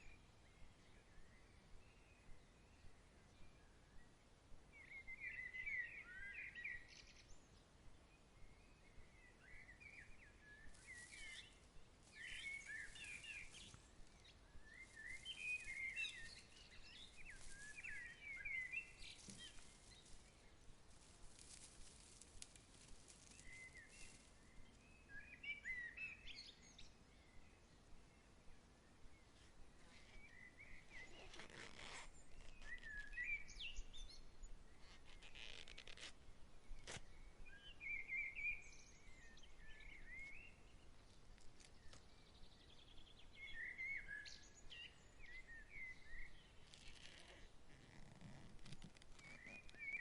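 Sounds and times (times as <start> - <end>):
faint outdoor hiss: 0.0 - 50.0
songbird twittering: 9.2 - 20.6, 23.3 - 27.0, 30.0 - 36.0, 41.8 - 48.3, 49.2 - 50.0.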